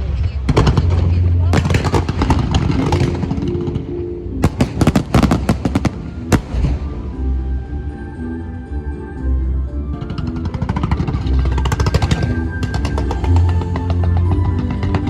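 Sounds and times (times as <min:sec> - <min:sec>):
fireworks bangs: 0:00.5 - 0:03.6, 0:04.4 - 0:07.4
music with held notes: 0:01.5 - 0:15.0.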